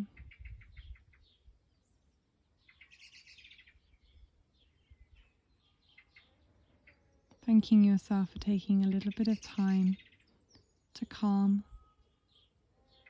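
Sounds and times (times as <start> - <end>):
faint birds chirping: 0.0 - 13.0
bird trill: 2.6 - 7.2, 9.0 - 13.0.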